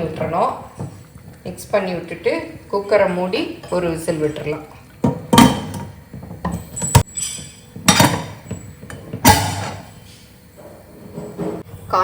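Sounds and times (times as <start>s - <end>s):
metal pressure cooker clanking: 3.6s - 8.6s, 9.2s - 9.9s.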